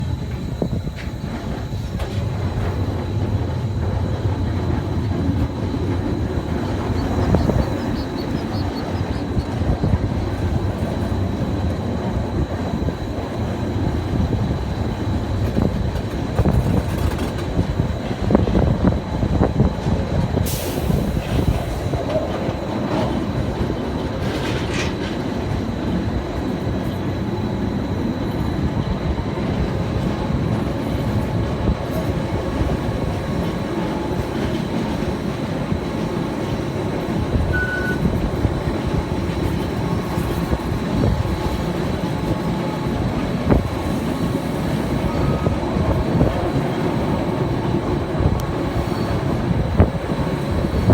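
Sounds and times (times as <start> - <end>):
electric train rumbling: 0.0 - 50.9
faint high whine: 32.3 - 50.9.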